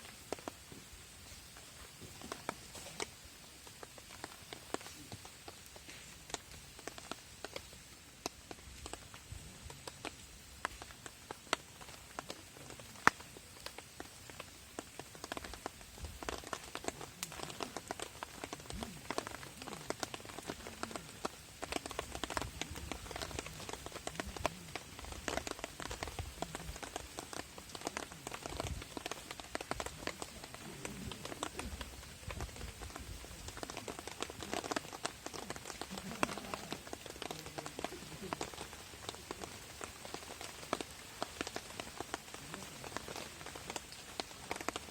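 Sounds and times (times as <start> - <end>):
rain tapping on tarp: 0.0 - 44.9.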